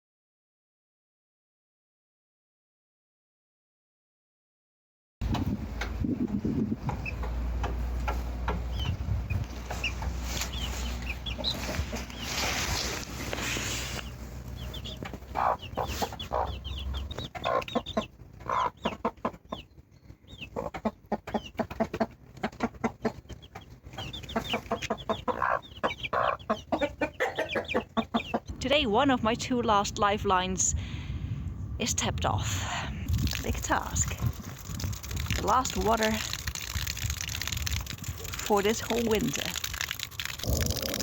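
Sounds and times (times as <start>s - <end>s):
low steady rumble: 5.2s - 20.5s, 22.1s - 39.6s
birds calling: 6.9s - 28.8s.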